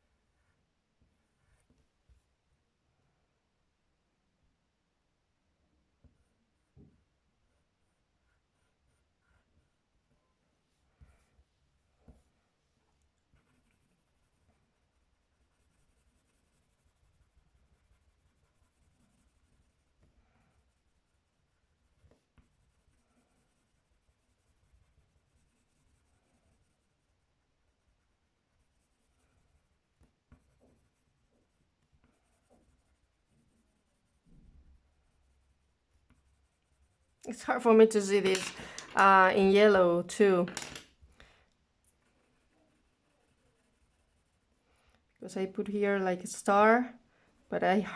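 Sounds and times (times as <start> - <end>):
pencil scratching on card: 8.2 - 9.9, 13.2 - 38.4, 41.2 - 44.9.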